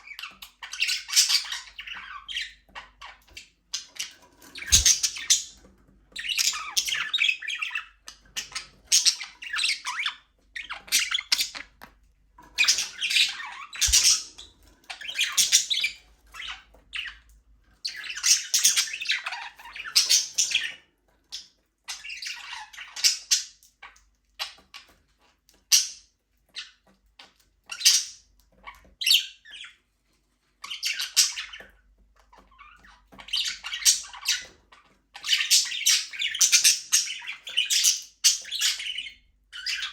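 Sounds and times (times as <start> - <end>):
budgerigars chattering and warbling: 0.0 - 11.8, 12.5 - 17.2, 17.8 - 24.9, 25.7 - 29.8, 30.6 - 31.7, 32.5 - 39.9.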